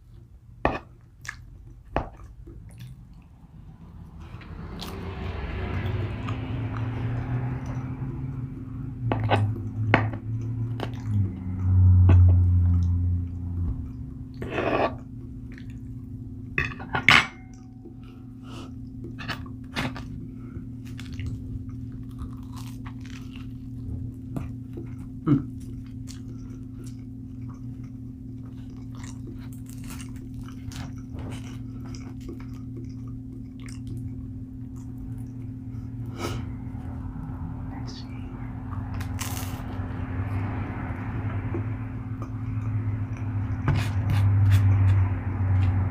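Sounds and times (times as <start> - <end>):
chewing and crunching: 0.0 - 45.9
steady low hum: 0.0 - 45.9
dishware clink: 16.6 - 17.6.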